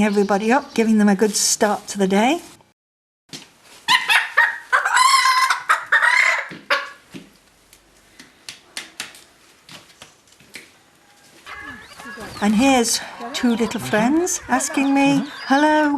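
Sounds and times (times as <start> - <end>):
hen calling excitedly: 11.3 - 15.9.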